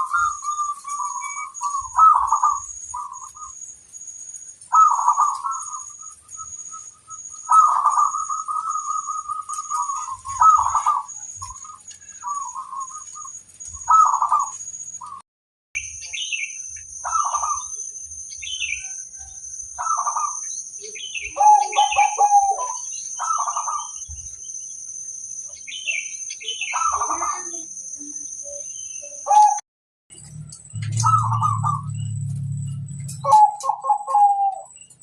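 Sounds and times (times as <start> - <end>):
dove cooing: 0.0 - 3.5, 4.7 - 6.0, 7.4 - 14.6, 19.8 - 24.0, 29.2 - 29.6, 30.8 - 32.0, 33.0 - 34.7
small birds chirping: 0.0 - 15.2, 15.8 - 29.6, 30.6 - 35.0.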